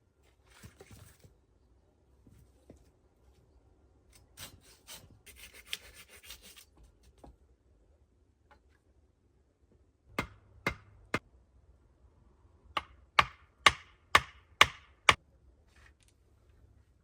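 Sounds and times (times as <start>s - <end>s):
hard strikes on wood: 10.1s - 11.2s, 12.8s - 15.2s.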